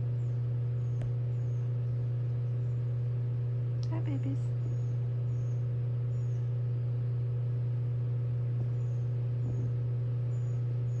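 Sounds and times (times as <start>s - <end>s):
faint high chirps: 4.6s - 6.6s.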